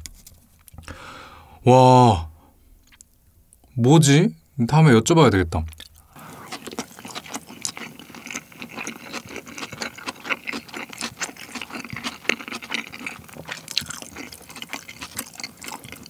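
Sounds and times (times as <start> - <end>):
wet chewing sounds: 5.7 - 16.0.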